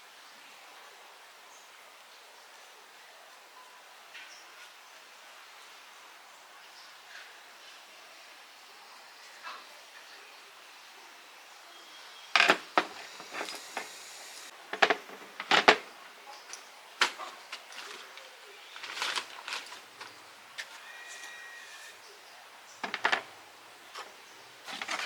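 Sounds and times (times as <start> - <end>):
metal tools clacking and clicking: 14.7 - 15.9, 22.8 - 23.3.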